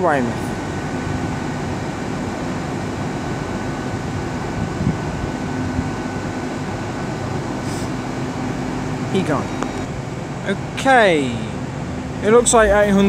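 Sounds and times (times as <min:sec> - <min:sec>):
diesel train rumble: 0:09.2 - 0:13.0.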